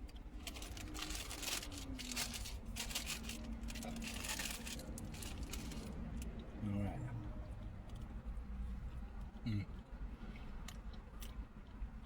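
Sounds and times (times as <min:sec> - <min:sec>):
paper wrapping crinkling: 0:00.4 - 0:06.0.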